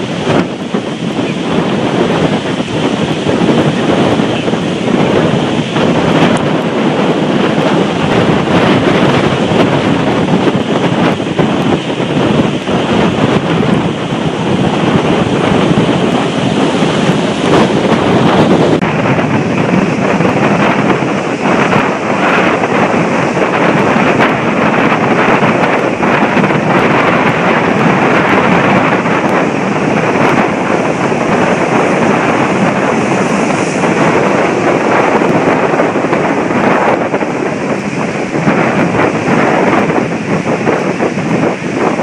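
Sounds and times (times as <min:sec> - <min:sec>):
heavy surf breaking: 0:00.0 - 0:42.0
storm wind buffeting microphone: 0:00.0 - 0:42.0.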